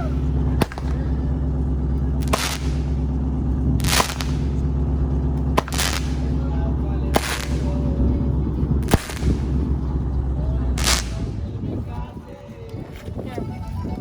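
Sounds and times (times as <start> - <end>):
sharp firecracker-like cracks: 0.0 - 8.0, 8.8 - 9.8, 10.8 - 11.4
low rumble: 0.0 - 14.0.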